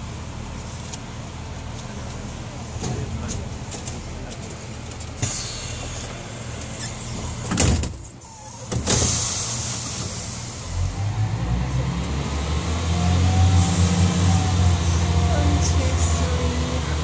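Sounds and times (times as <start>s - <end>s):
train engine rumble: 0.0s - 17.0s
train doors closing: 2.8s - 11.0s.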